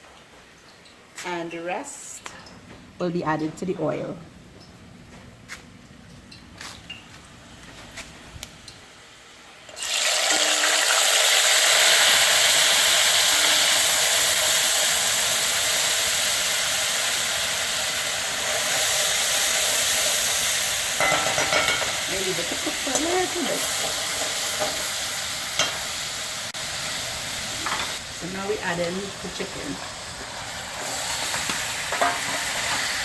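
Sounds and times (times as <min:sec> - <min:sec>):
paste sizzling in hot oil: 0:09.7 - 0:33.0.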